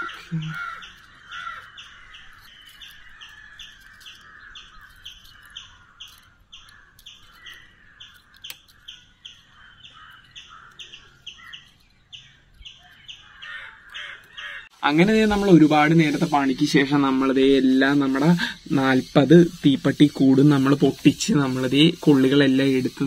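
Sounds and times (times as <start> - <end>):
faint birds calling: 0.0 - 23.0
small bird chirping: 0.0 - 23.0.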